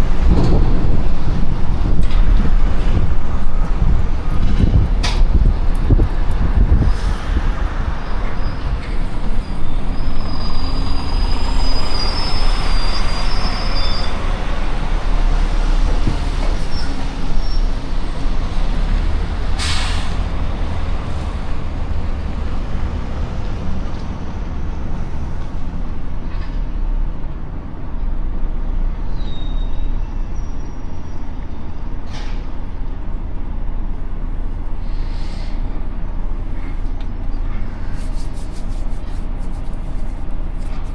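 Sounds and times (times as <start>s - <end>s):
truck engine rumbling: 0.0s - 29.0s, 31.0s - 40.9s
air brakes hissing: 6.6s - 14.5s, 19.5s - 22.3s, 34.7s - 39.5s
high squeal: 6.8s - 14.8s, 16.4s - 18.0s, 29.1s - 31.9s.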